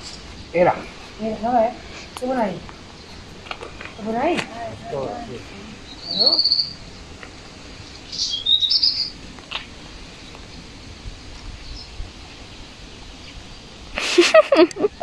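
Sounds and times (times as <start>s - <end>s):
faint outdoor background noise: 0.0s - 15.0s
small bird trilling: 5.8s - 6.8s, 8.1s - 9.2s.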